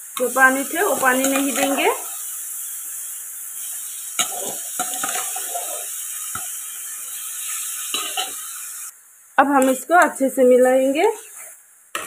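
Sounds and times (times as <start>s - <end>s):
food sizzling in hot oil: 0.0s - 12.0s
spatula scraping a pan: 0.8s - 2.0s, 3.6s - 6.0s.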